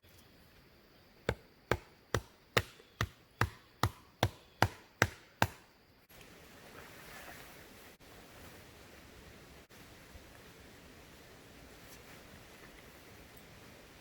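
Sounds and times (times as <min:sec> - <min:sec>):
tool striking wood: 0:01.3 - 0:05.7.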